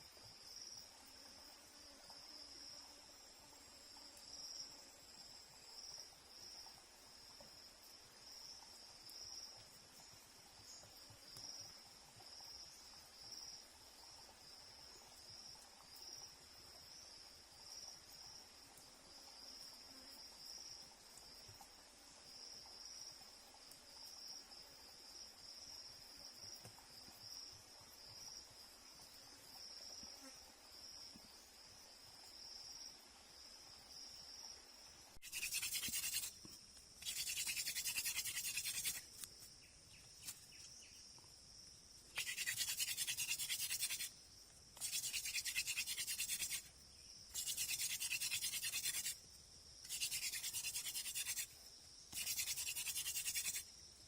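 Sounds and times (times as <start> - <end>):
insect chorus trilling: 22.3 - 54.0.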